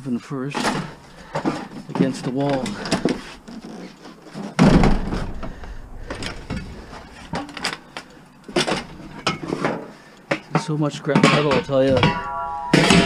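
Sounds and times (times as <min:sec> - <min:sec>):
metal scraping: 0:11.7 - 0:13.0.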